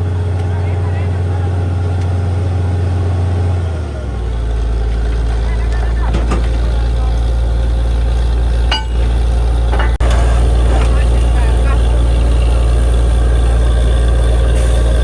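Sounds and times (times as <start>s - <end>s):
drilling rig engine humming: 0.0s - 15.0s.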